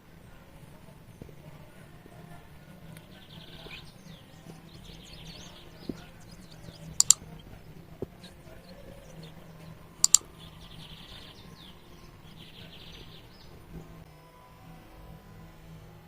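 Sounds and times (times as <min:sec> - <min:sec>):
small birds chirping: 0:00.1 - 0:14.1
sharp clicks: 0:06.5 - 0:07.6, 0:10.0 - 0:10.3.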